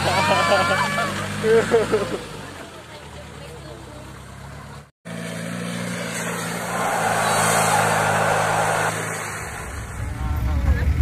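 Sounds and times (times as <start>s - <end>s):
engine driving past: 0.0s - 11.0s
rushing noise: 6.4s - 11.0s.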